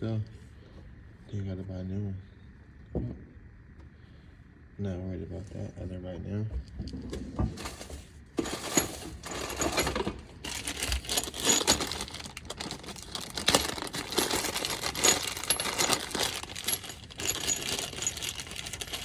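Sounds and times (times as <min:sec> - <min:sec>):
metal bolts clinking: 0:08.6 - 0:19.0.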